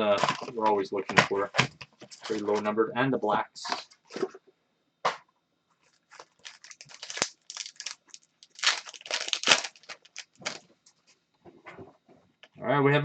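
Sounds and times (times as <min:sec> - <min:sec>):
foil wrapper crinkling and tearing: 0:02.2 - 0:02.6, 0:05.8 - 0:10.6.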